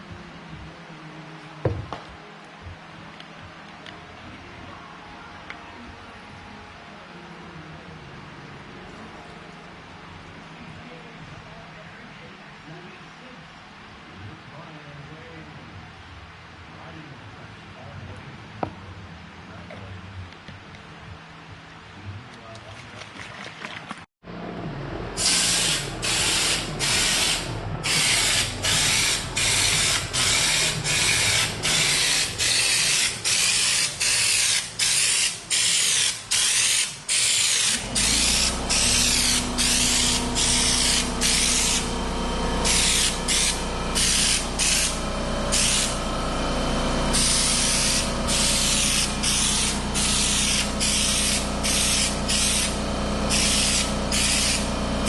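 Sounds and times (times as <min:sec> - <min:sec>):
low motor hum: 0:24.3 - 0:34.9, 0:37.8 - 0:55.0
spray gun hissing bursts: 0:25.2 - 0:46.3, 0:47.1 - 0:55.0.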